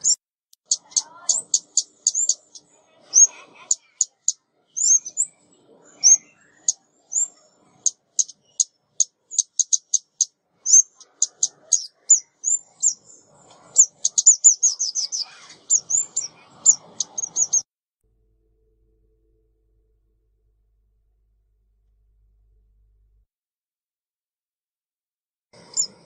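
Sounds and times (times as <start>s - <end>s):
songbird chip calls: 0.0s - 17.6s, 25.6s - 26.0s.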